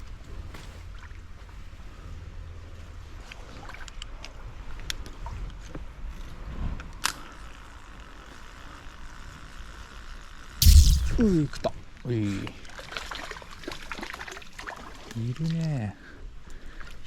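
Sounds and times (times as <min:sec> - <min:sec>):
low rumble: 0:10.6 - 0:11.4.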